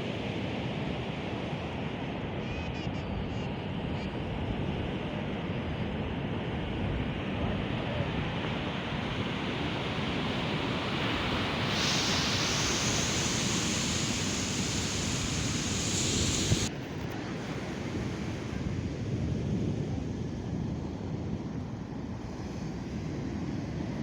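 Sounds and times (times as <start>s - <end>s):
wind buffeting the microphone: 5.9s - 16.7s
surf breaking on a beach: 7.6s - 16.7s.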